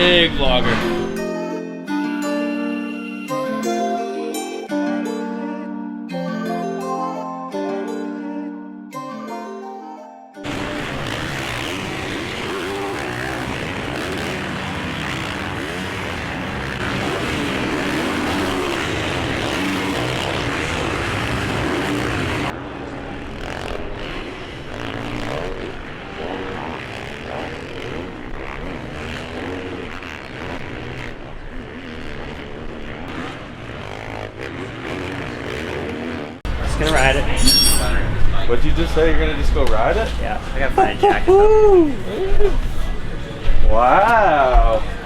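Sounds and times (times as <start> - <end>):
engine running: 10.4 - 41.0.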